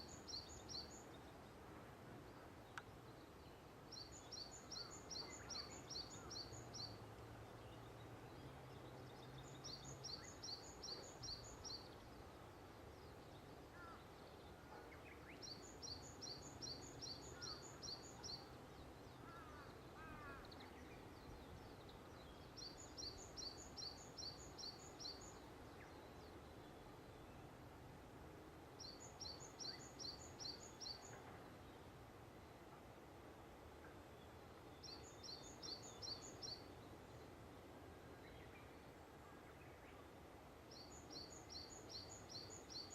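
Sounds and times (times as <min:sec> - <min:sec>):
faint bird chirps: 0:02.3 - 0:27.6.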